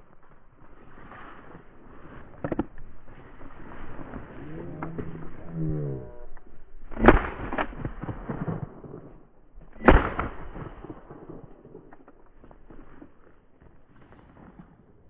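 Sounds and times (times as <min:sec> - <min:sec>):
shotgun shots: 0:06.9 - 0:08.8, 0:09.7 - 0:11.9.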